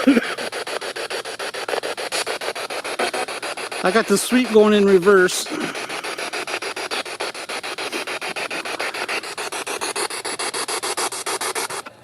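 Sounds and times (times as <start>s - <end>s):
chopped radio static pulsing: 2.8s - 6.4s.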